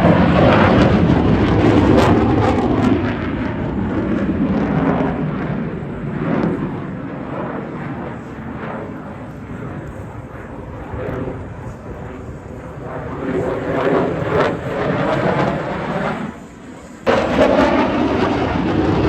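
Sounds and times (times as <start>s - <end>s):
airplane engine flying past: 0.0s - 19.0s.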